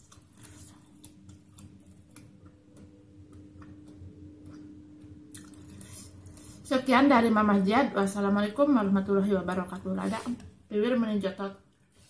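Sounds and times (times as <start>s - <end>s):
low hum: 0.0s - 10.8s
mouth chewing clicks: 5.3s - 5.8s.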